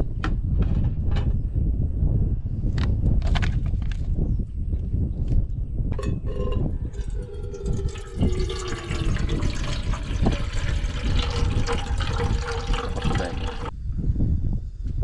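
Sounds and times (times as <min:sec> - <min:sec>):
water pouring into container: 0:06.3 - 0:13.7.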